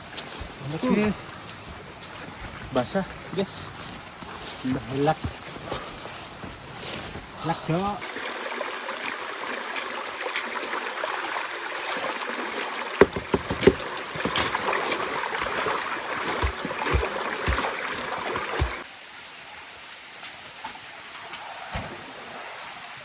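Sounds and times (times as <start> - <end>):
rushing water: 6.3 - 23.0
sharp knocks and low thumps: 13.0 - 18.8.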